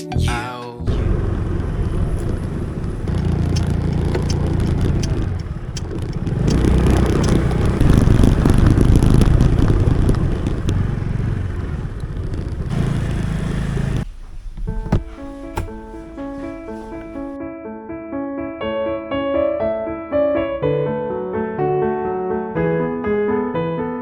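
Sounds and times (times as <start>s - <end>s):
motorcycle engine: 0.9s - 17.4s
wind rushing over microphone: 0.9s - 17.4s.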